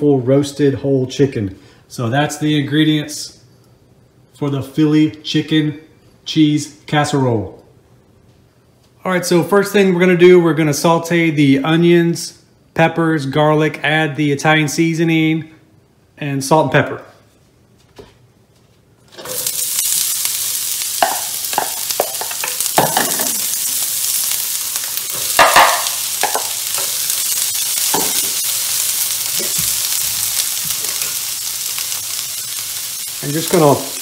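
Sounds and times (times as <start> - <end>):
vegetables sizzling in oil: 19.1 - 34.0.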